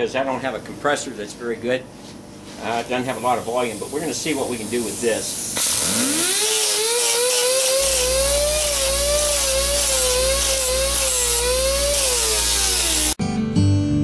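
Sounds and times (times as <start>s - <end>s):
air grinder whining: 4.9s - 13.2s
guitar music: 13.2s - 14.0s.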